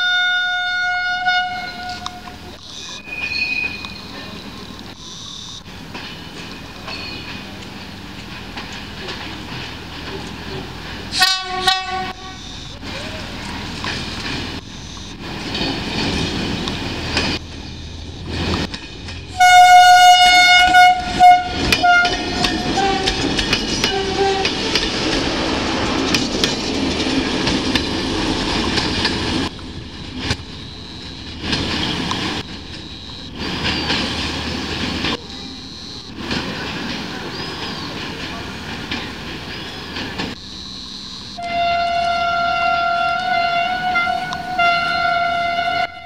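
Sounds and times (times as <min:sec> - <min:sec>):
train horn blast: 0:00.0 - 0:02.4, 0:11.1 - 0:12.6, 0:19.3 - 0:25.8, 0:40.9 - 0:46.0
railcar engine and wheels rumbling: 0:00.0 - 0:46.0
clickety-clack over rail joints: 0:00.1 - 0:40.5.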